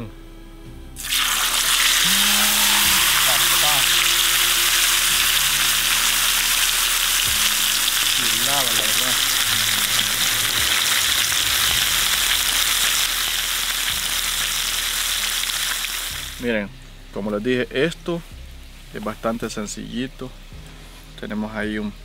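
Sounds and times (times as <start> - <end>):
fish sizzling in hot oil: 1.0 - 16.5.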